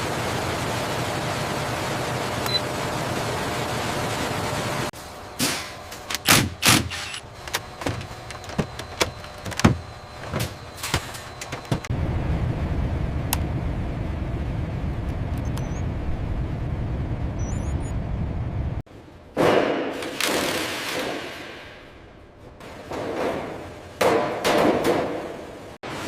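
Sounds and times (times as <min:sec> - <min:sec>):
mechanical clicks and clunks: 0:06.0 - 0:11.9
low machine rumble: 0:07.0 - 0:19.2.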